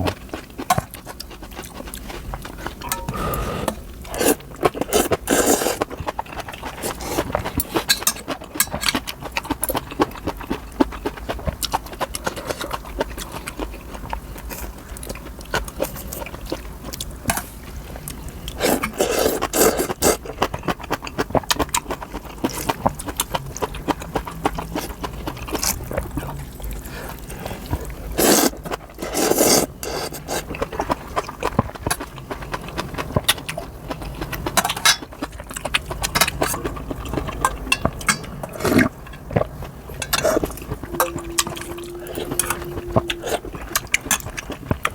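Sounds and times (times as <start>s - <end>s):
wet chewing: 0.0s - 44.9s
noodle slurp: 3.1s - 5.9s, 27.4s - 30.6s.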